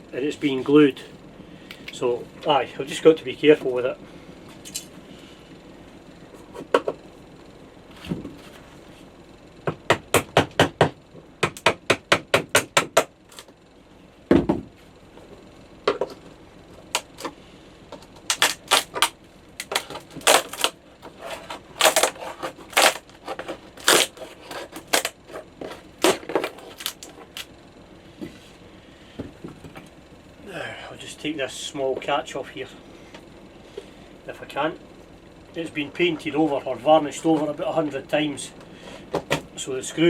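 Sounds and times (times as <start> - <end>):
heavy thump: 14.3 - 14.7
scraping strokes on wood: 19.8 - 27.4.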